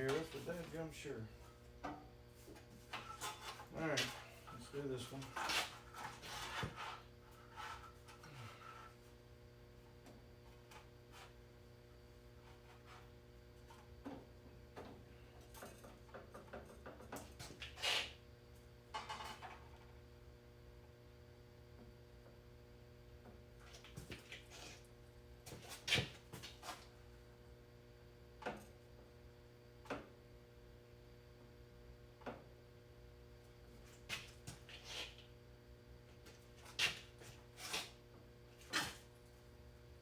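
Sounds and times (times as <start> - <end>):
low electrical hum: 0.0 - 40.0.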